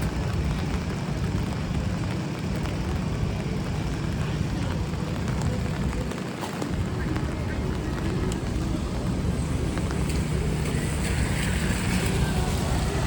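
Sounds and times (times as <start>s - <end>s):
low traffic rumble: 0.0s - 13.0s
rain hiss: 0.0s - 13.0s
wet road noise: 0.0s - 13.0s.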